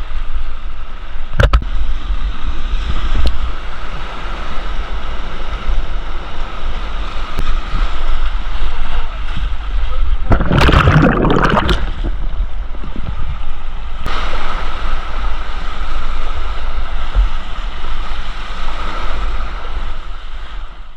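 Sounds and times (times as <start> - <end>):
wind rumble on microphone: 0.0 - 20.9
water splashing: 10.2 - 13.2
whitewater rushing: 10.3 - 12.2.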